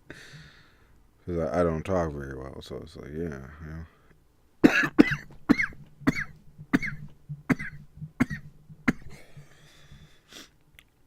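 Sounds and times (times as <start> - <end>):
man coughing: 4.6 - 9.3.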